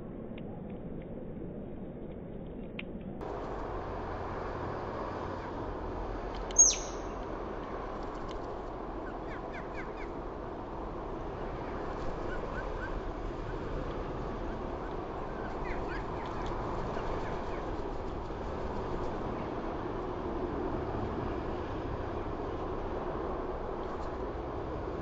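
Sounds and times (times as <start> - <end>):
faint bird chirps: 6.5 - 7.2
bird call sweeping down: 6.6 - 7.1.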